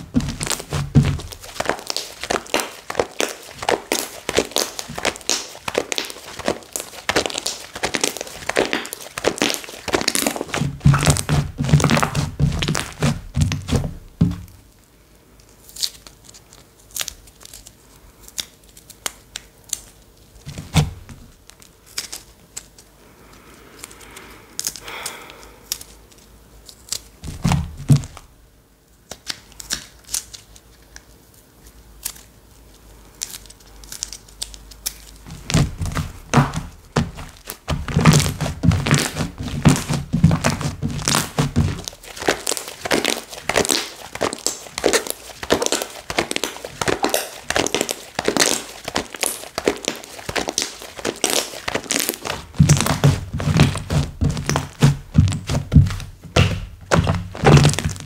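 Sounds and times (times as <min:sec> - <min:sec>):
slime squeezed by hand: 0:00.0 - 0:14.4, 0:35.3 - 0:58.0.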